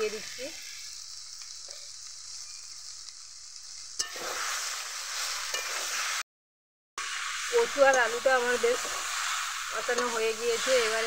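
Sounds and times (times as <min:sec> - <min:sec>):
food sizzling in oil: 0:00.0 - 0:06.3, 0:07.0 - 0:11.0.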